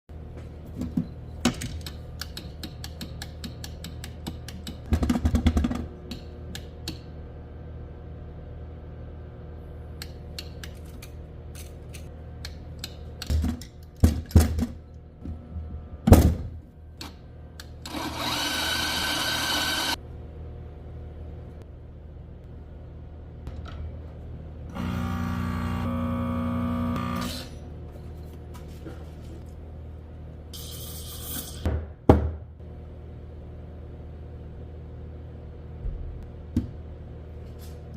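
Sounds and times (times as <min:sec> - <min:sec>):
grinder motor hum: 0:17.8 - 0:20.0, 0:24.7 - 0:27.5
loud grinding noise: 0:17.9 - 0:20.0, 0:24.7 - 0:27.5.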